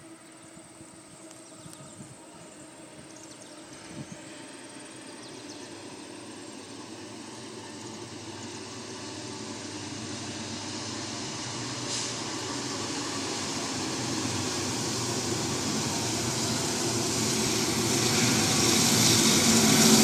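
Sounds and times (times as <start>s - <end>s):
rail rumble: 0.0s - 20.0s
train engine drone: 0.0s - 20.0s.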